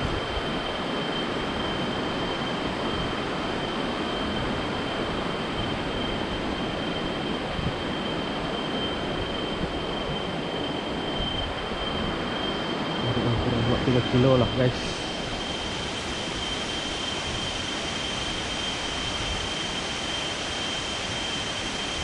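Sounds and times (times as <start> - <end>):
high-pitched steady tone: 0.0 - 22.0
waterfall roar: 13.0 - 17.7.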